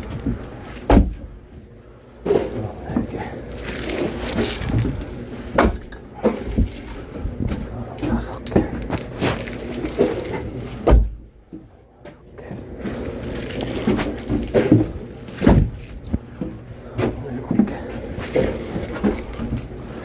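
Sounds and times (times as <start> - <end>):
logs thumping down: 3.6 - 7.6, 13.3 - 16.3.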